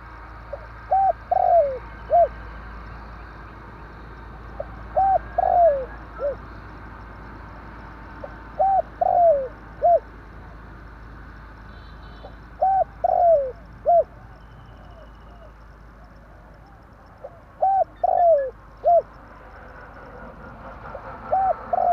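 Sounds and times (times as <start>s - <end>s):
dove cooing: 0.5s - 2.4s, 4.5s - 6.5s, 8.2s - 10.1s, 12.6s - 15.6s, 16.5s - 19.2s, 19.9s - 21.9s.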